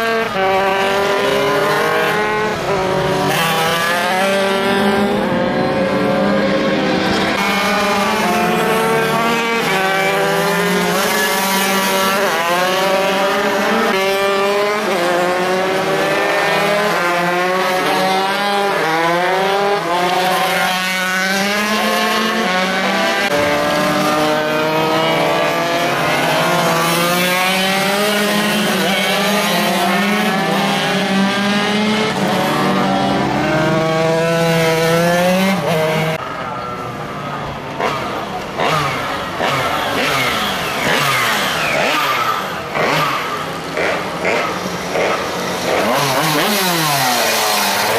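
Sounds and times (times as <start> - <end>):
minimoto engines racing: 0.0 - 47.9.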